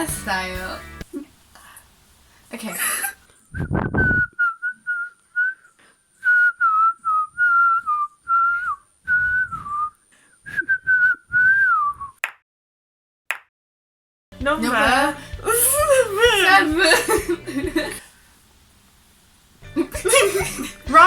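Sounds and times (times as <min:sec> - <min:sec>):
person whistling a tune: 0:03.5 - 0:12.2.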